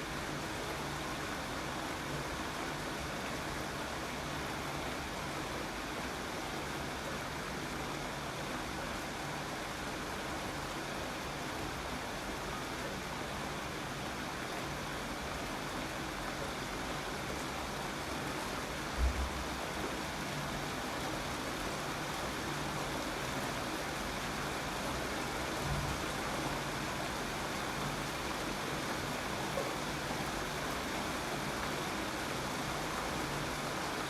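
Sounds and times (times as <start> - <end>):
steady rain falling: 0.0 - 34.0
low thump: 19.0 - 19.4.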